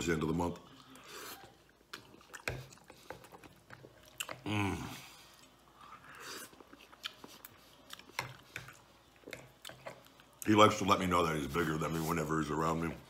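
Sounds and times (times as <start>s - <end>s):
man chewing: 0.7s - 10.4s.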